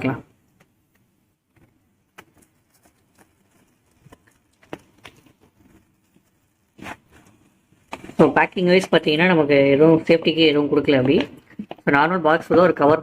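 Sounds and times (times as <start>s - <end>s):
cardboard box being handled: 2.2s - 8.3s.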